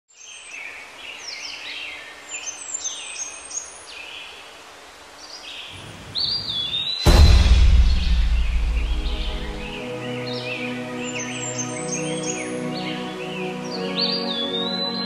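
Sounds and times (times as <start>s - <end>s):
faint outdoor hiss: 0.1s - 15.0s
birds chirping and whistling: 5.5s - 15.0s.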